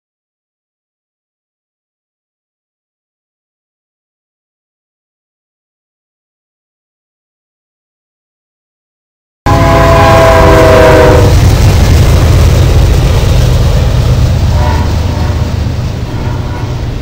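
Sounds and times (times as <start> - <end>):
train air horn: 9.5 - 11.4, 14.5 - 17.0
freight train rumbling: 9.5 - 17.0.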